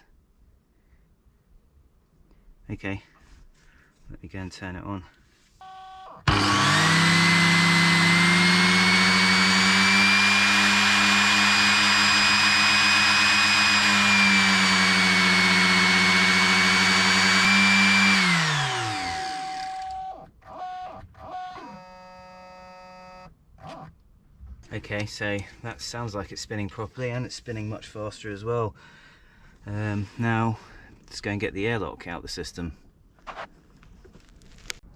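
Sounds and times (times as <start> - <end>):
shower pump whining: 5.6 - 22.8.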